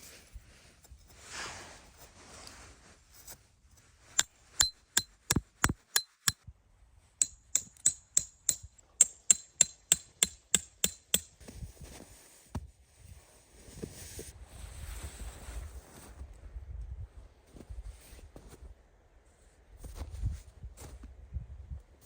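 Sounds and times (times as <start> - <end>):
hammer striking metal tent pegs: 4.6 - 6.4, 7.2 - 11.3.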